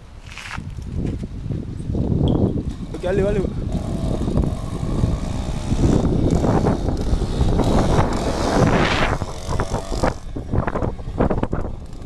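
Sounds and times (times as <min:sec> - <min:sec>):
wind buffeting microphone: 0:00.0 - 0:12.0
two-stroke engine running: 0:02.8 - 0:12.0.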